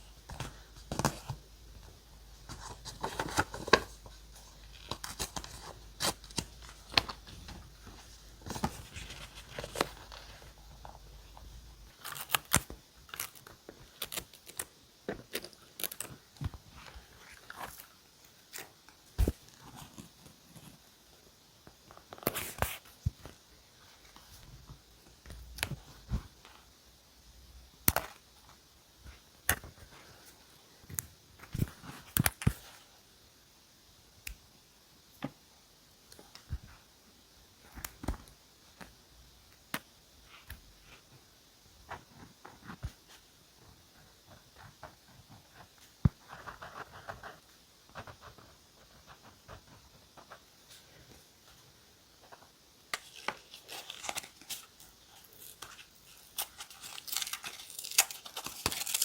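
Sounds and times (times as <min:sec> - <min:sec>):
paper rustling: 0:02.4 - 0:11.4, 0:52.2 - 0:59.0.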